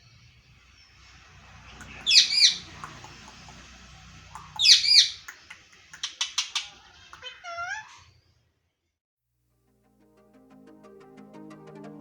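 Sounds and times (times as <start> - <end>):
parakeet chirps: 0.1 - 8.3
parakeet screeching: 1.4 - 8.3
squeaky warbling call: 1.8 - 2.7, 4.4 - 5.4.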